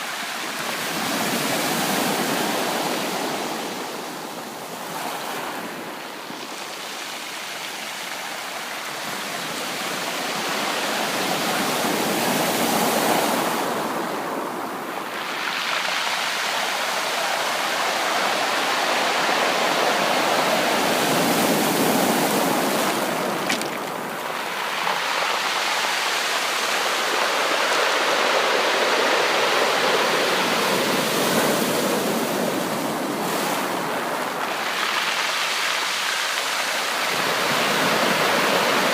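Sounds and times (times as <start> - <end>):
ocean waves breaking: 9.8 - 38.9.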